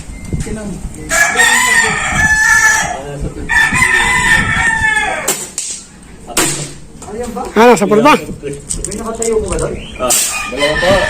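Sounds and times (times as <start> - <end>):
rooster crowing: 1.1 - 5.4, 10.3 - 11.0.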